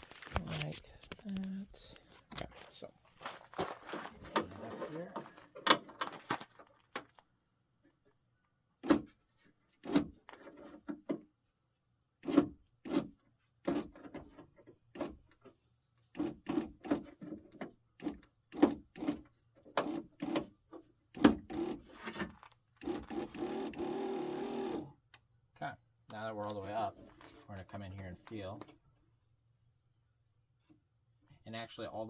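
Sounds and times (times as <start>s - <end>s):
power window motor: 21.2s - 21.9s, 22.8s - 24.9s.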